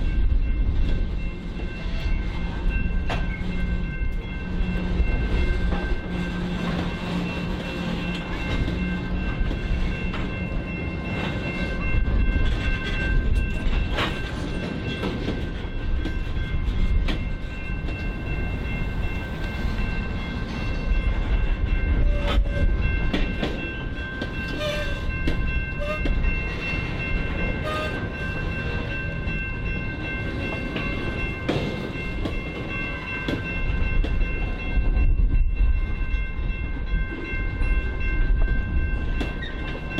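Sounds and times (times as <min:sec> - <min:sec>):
freight train rumbling past: 0:00.0 - 0:39.9
wheels clicking over rail joints: 0:05.1 - 0:19.7.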